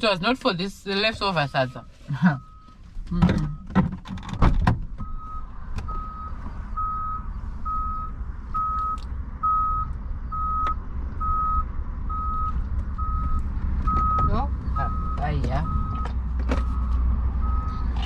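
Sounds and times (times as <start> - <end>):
reversing alarm beeping: 1.1 - 2.8, 4.4 - 17.9.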